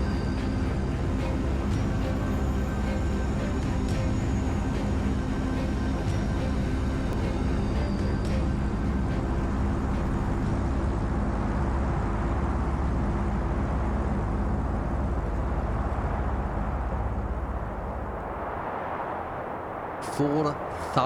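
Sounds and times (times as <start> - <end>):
faint music: 0.0 - 19.0
deep rumble of explosion: 13.4 - 21.0.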